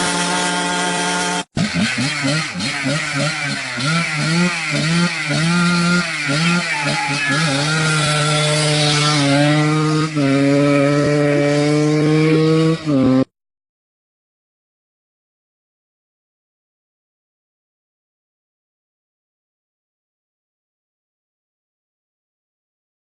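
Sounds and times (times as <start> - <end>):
small motorcycle engine revving: 0.0 - 13.3.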